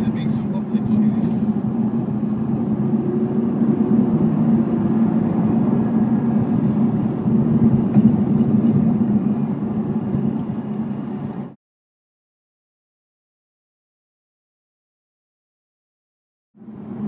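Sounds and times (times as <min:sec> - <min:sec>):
car engine cruising: 0:00.0 - 0:11.6, 0:16.6 - 0:17.0
road noise: 0:00.0 - 0:11.6, 0:16.6 - 0:17.0.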